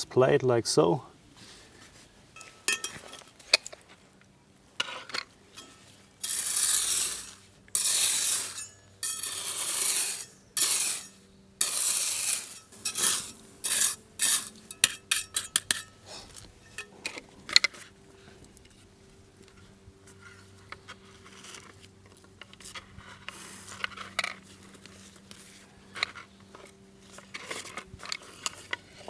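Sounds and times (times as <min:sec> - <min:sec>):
small clinks and taps: 0:02.4 - 0:03.8
plate scraping: 0:04.8 - 0:16.0.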